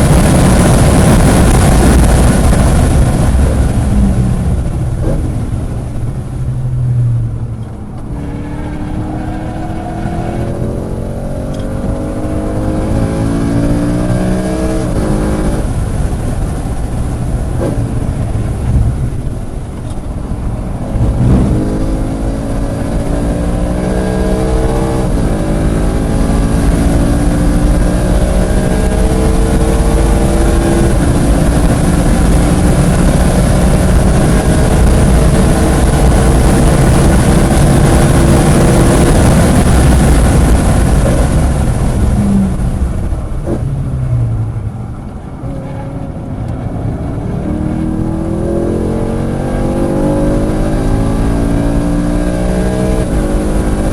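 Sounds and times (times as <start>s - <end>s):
car engine at full throttle: 0.0s - 53.9s
wind and road noise: 0.0s - 53.9s.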